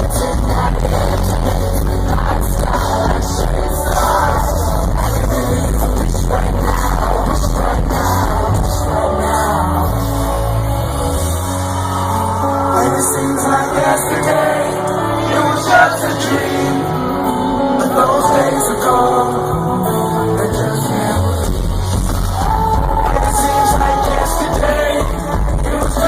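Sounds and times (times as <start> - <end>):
deep bass: 0.0 - 12.7, 19.5 - 26.0
live band music: 0.0 - 26.0
person singing over band: 0.0 - 26.0.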